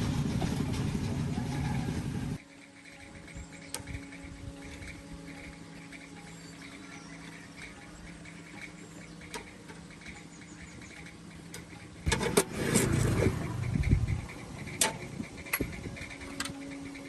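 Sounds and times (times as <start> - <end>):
low hum: 0.0 - 17.0
sharp metallic clicks: 2.4 - 17.0.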